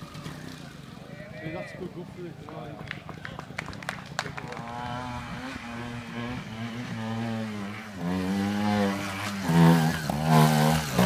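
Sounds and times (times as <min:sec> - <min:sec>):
motorcycle engine revving: 0:00.0 - 0:01.1, 0:04.3 - 0:11.0.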